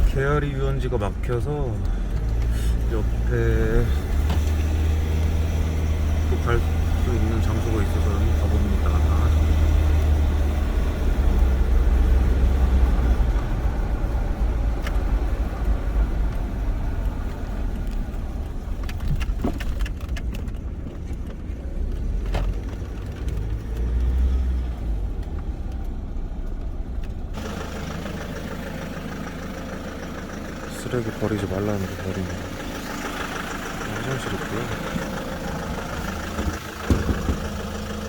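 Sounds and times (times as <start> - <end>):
car engine running: 0.0 - 38.0
road noise: 0.0 - 38.0
sharp knocks: 36.3 - 37.6.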